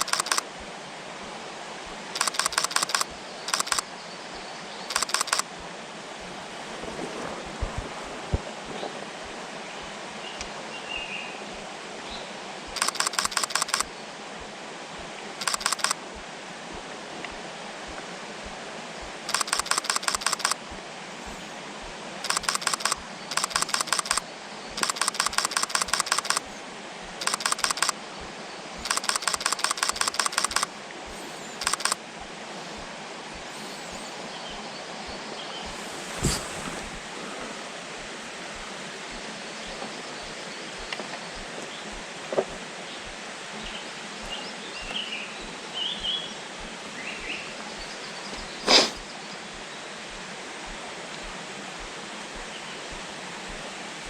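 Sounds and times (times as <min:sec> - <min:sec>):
camera shutter bursts: 0:00.0 - 0:00.5, 0:02.2 - 0:03.9, 0:04.9 - 0:05.5, 0:12.8 - 0:13.9, 0:15.4 - 0:16.0, 0:19.3 - 0:20.6, 0:22.2 - 0:24.2, 0:24.8 - 0:26.6, 0:27.2 - 0:28.0, 0:28.8 - 0:30.8, 0:31.6 - 0:32.0, 0:48.7 - 0:49.0.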